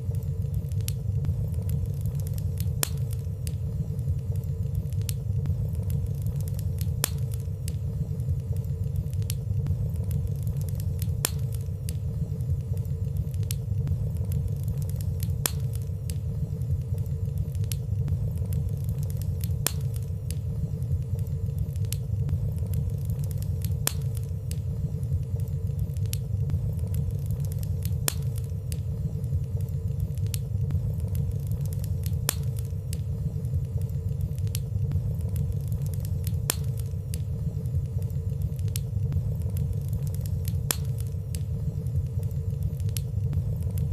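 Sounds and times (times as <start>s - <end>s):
soft crackles of fire: 0.0s - 43.9s
wood fire burning: 0.0s - 43.9s.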